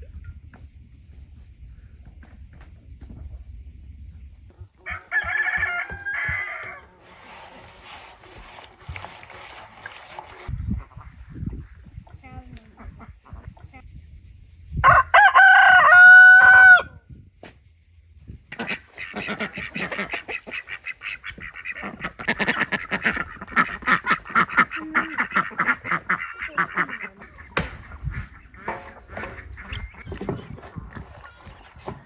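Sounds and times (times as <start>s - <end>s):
rooster crowing: 4.8s - 7.0s, 14.8s - 17.0s
fowl chattering: 18.5s - 31.7s.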